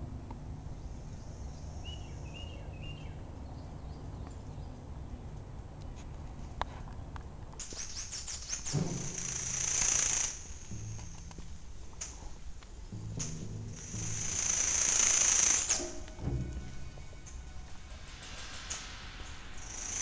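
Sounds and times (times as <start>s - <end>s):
low outdoor rumble: 0.0s - 7.6s, 8.4s - 20.0s
rustling hiss with crackles: 0.0s - 20.0s
bird chirps: 0.8s - 5.2s.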